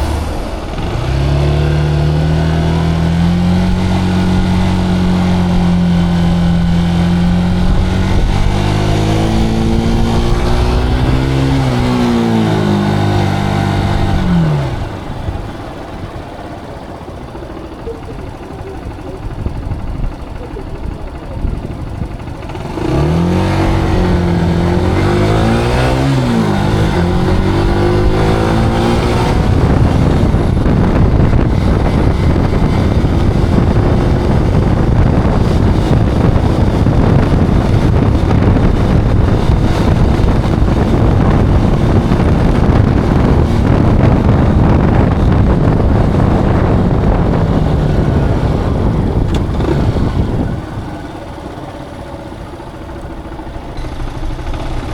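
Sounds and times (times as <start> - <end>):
motorcycle engine accelerating: 0.0 - 54.9
rushing wind and road noise: 0.0 - 54.9.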